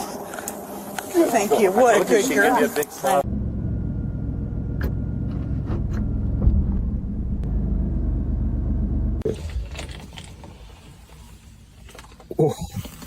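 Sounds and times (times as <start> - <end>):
vehicle engine idling: 3.0 - 9.5.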